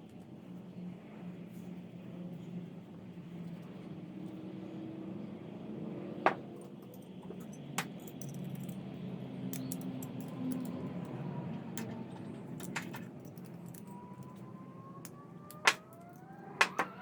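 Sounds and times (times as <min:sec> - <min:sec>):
metallic clicks of small parts: 0:06.6 - 0:17.0.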